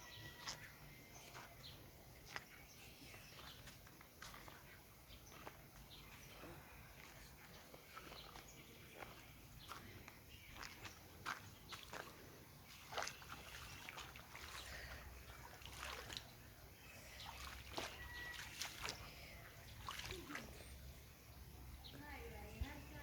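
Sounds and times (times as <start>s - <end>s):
water splashing onto plants: 10.6s - 20.8s.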